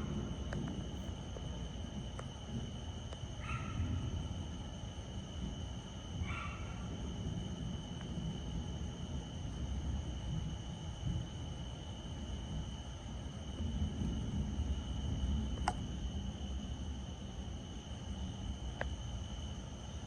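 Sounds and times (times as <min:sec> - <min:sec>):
distant thunder rumbling: 0:00.0 - 0:02.7.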